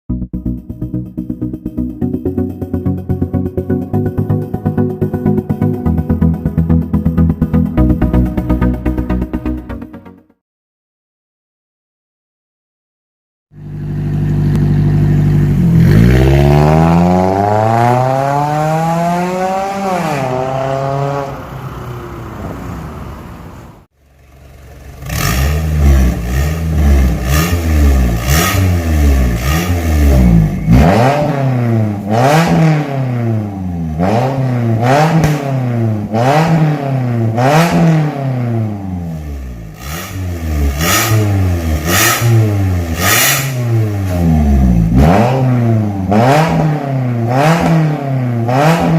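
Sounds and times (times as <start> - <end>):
car engine revving: 13.6 - 48.9.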